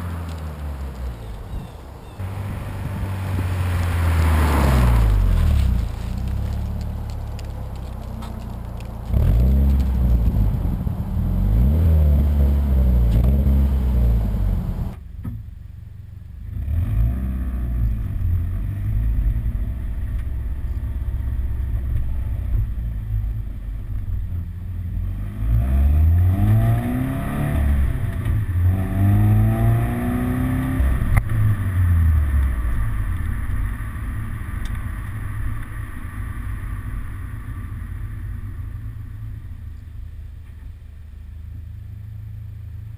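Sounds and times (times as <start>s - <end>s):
car engine revving: 0.0s - 15.0s, 24.8s - 39.8s
car engine idling: 0.0s - 16.5s, 32.3s - 42.9s.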